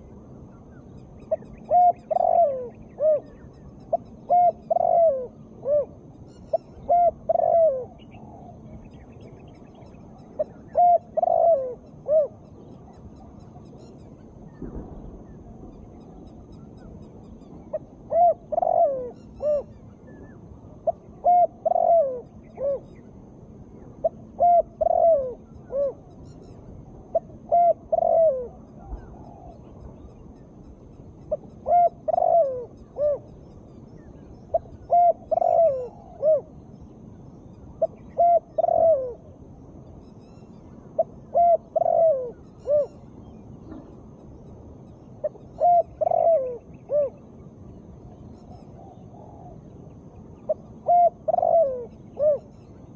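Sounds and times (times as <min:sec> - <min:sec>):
dove cooing: 0:01.3 - 0:13.7, 0:17.6 - 0:23.0, 0:23.8 - 0:26.2, 0:26.9 - 0:29.8, 0:31.3 - 0:33.3, 0:34.5 - 0:36.6, 0:37.8 - 0:39.4, 0:40.9 - 0:43.0, 0:45.2 - 0:47.3, 0:48.4 - 0:52.5.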